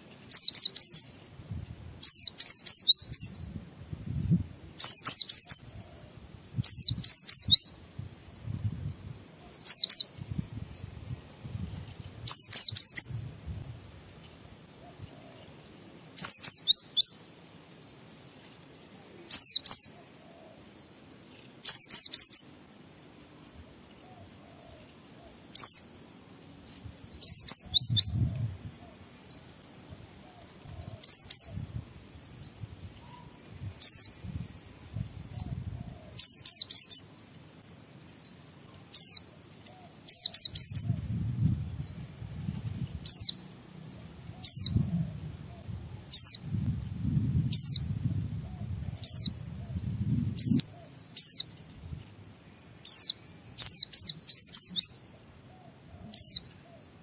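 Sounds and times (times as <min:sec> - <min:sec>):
bird chirping high sharp chirps: 0:02.0 - 0:03.4, 0:06.6 - 0:07.7, 0:09.6 - 0:10.2, 0:12.3 - 0:13.1, 0:16.2 - 0:17.2, 0:21.7 - 0:22.5, 0:27.2 - 0:28.3, 0:52.9 - 0:55.0.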